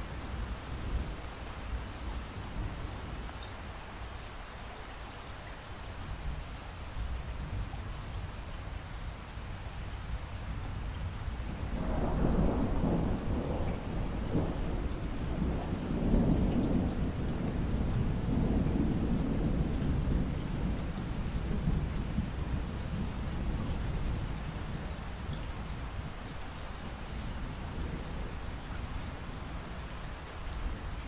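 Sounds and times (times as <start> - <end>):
steady rain: 0.0 - 31.0
rolling thunder: 11.5 - 25.0.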